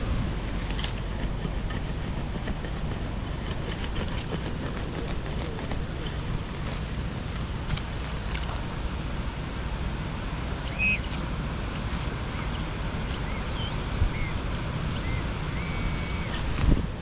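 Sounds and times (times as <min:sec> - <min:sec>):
wind buffeting microphone: 0:11.3 - 0:17.0.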